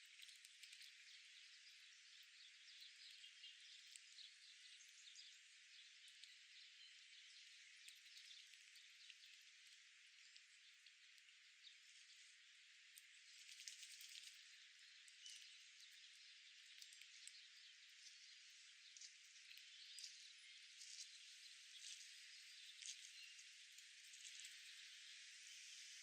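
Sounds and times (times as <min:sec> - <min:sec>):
light ticks: 0:00.0 - 0:01.2, 0:02.8 - 0:04.3, 0:06.0 - 0:06.4, 0:12.9 - 0:24.8.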